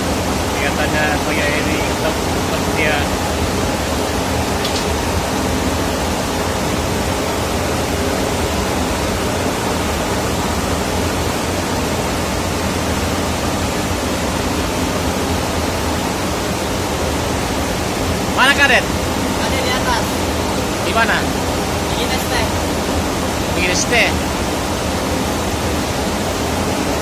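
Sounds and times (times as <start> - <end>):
engine room machinery running: 0.0 - 27.0.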